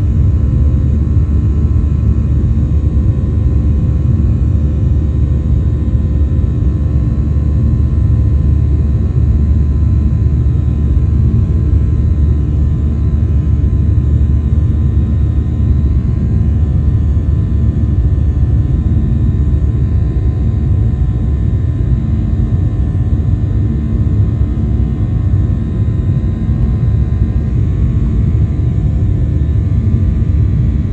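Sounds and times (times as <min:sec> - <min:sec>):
airplane cabin engine rumble: 0:00.0 - 0:30.9.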